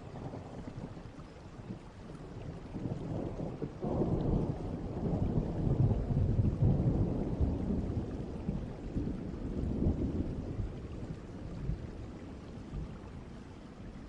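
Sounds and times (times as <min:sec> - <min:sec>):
steady rain: 0:00.0 - 0:14.0
distant thunder rumbling: 0:02.7 - 0:13.0.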